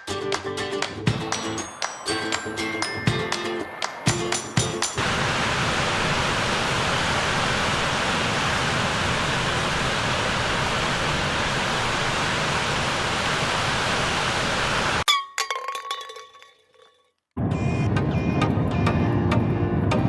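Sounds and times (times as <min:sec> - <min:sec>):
steady rushing noise: 0:00.8 - 0:15.0.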